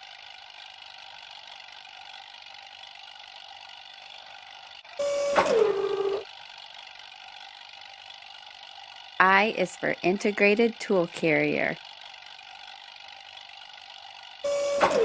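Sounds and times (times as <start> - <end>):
steady mechanical hum: 0.0 - 15.0
high-pitched whine: 4.9 - 6.3, 14.4 - 15.0.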